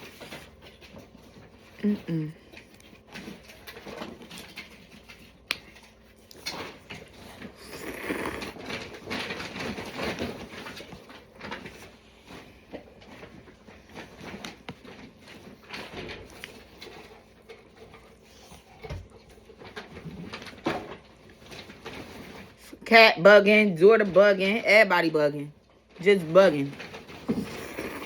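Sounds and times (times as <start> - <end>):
person eating noodles: 7.3 - 8.8, 27.2 - 28.0.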